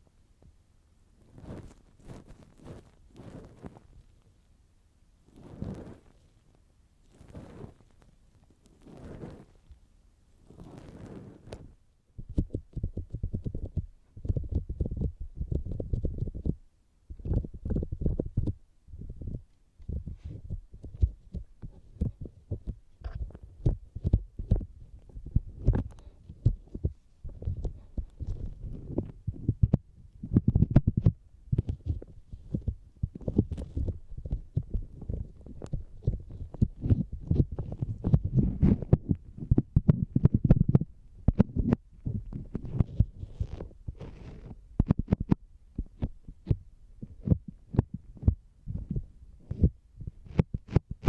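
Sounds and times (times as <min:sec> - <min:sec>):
cotton swab rustling: 0:01.2 - 0:04.4, 0:05.2 - 0:09.8, 0:10.4 - 0:16.6, 0:17.2 - 0:29.8, 0:30.4 - 0:45.3
fingertips tapping on microphone: 0:10.5 - 0:51.0.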